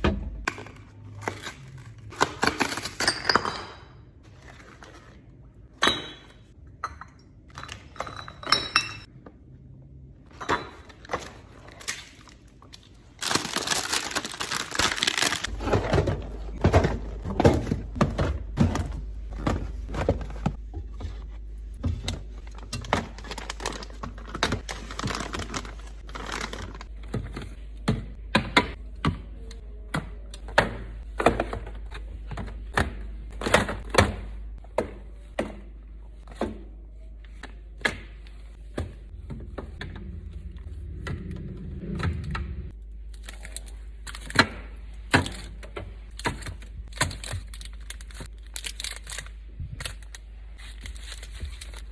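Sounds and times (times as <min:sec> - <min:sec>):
bottles and jars clinking: 0:03.0 - 0:04.1, 0:05.7 - 0:09.1.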